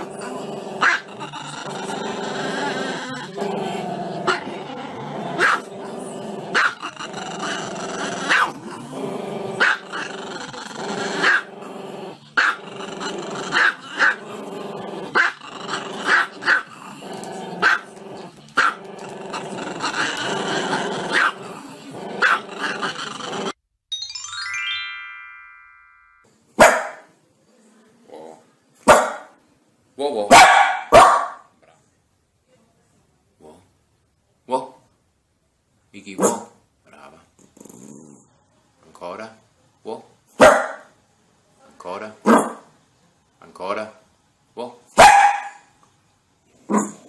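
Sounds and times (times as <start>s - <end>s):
loud dog bark: 5.4s - 5.6s, 26.6s - 27.1s, 28.9s - 29.3s, 30.3s - 31.5s, 36.2s - 36.6s, 40.4s - 40.9s, 45.0s - 45.7s
background music: 23.9s - 26.2s
falling chime tones: 23.9s - 26.2s
dog barking in sharp yelps: 26.6s - 27.0s, 28.9s - 29.3s, 30.3s - 31.4s, 40.4s - 40.8s, 45.0s - 45.7s.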